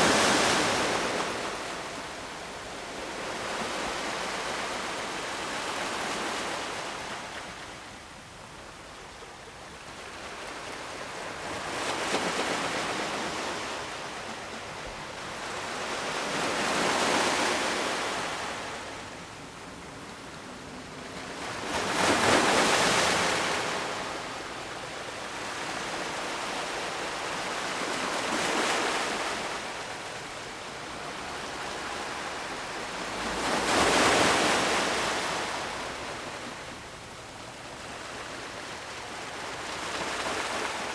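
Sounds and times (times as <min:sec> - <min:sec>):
ocean waves breaking: 0:20.6 - 0:40.9.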